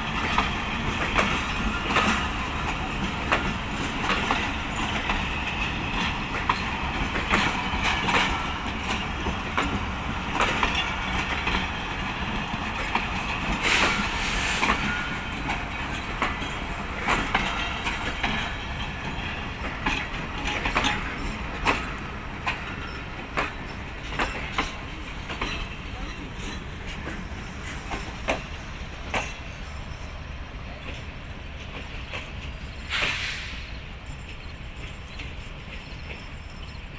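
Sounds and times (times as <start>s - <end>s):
train rumble: 0.0s - 36.9s
train wheels clacking on rail joints: 0.0s - 36.9s.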